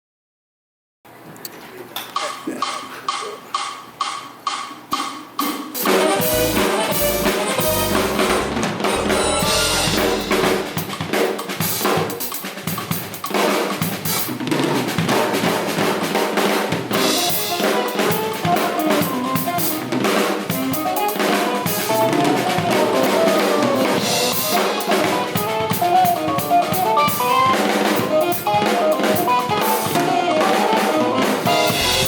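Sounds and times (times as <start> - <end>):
drum kit: 2.1 - 32.0
full band playing: 2.2 - 32.0
deep bass notes: 6.2 - 10.8.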